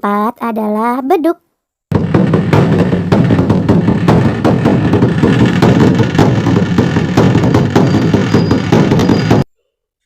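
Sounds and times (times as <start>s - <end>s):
large drum beaten fast: 1.9s - 9.4s.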